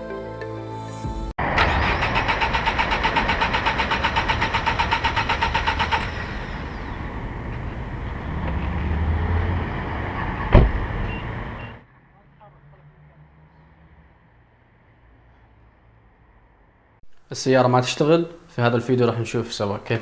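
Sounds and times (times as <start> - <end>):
car engine cranking: 1.4 - 11.7.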